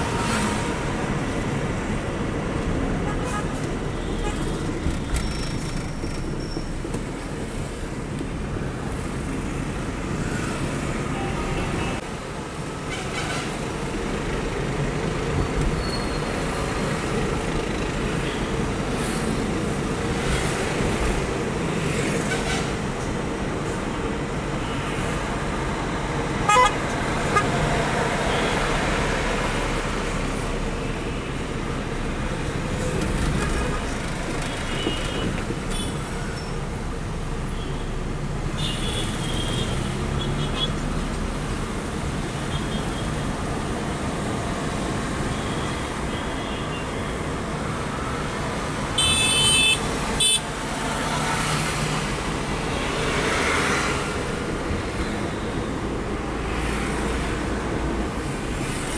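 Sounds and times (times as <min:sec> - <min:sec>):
truck engine and road noise: 0:00.0 - 0:58.9
truck horn toots: 0:26.5 - 0:27.6.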